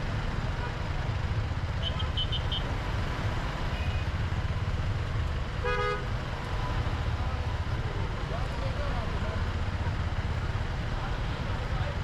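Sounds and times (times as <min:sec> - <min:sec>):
road rumble: 0:00.0 - 0:12.0
vehicle horn honk: 0:05.6 - 0:06.0.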